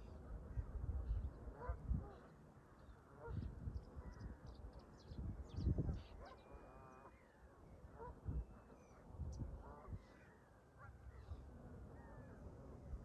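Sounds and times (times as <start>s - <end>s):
wind buffeting microphone: 0.0s - 2.2s, 3.2s - 6.2s, 9.1s - 10.0s.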